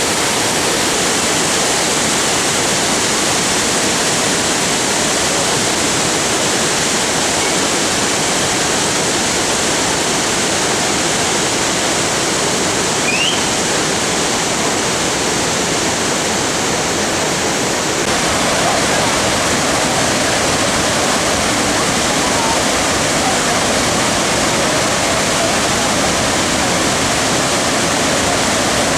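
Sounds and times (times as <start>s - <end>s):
waterfall rushing: 0.0s - 28.9s
rising chirp: 13.0s - 13.6s.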